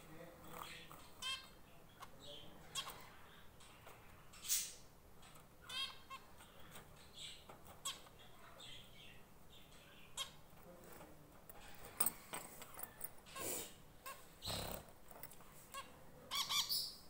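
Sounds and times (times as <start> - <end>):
pet birds chirping: 0.1 - 17.0.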